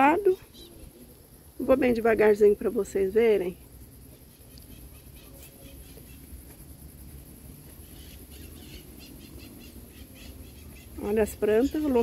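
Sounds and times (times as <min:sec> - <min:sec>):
faint bird chirps: 0:00.2 - 0:01.7, 0:03.9 - 0:12.0.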